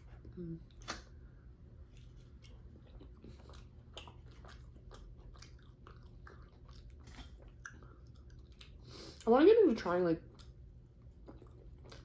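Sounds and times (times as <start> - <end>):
low background hum: 0.0 - 12.0
mouth chewing food: 1.8 - 9.4, 10.2 - 12.0.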